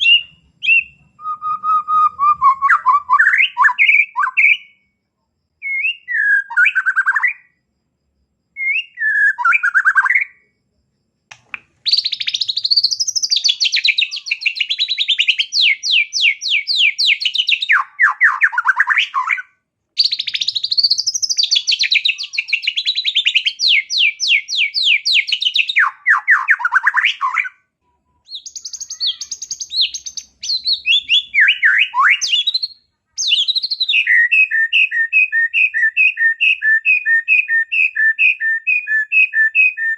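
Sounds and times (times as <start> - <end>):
bird singing rattling trills: 11.8 - 19.4, 20.0 - 27.4, 28.3 - 35.0.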